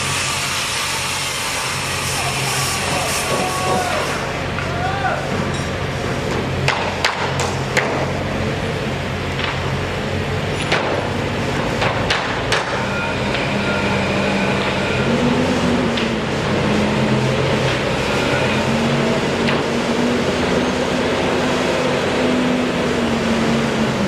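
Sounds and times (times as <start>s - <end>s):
engine drone: 0.0s - 24.0s.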